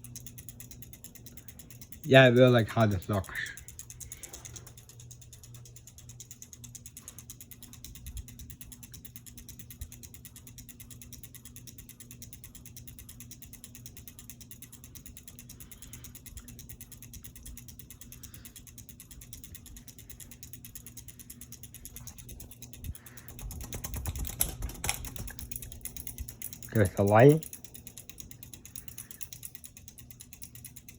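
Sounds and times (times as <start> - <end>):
ceiling fan motor hum: 0.0 - 30.9
fast even ticking: 0.0 - 30.9.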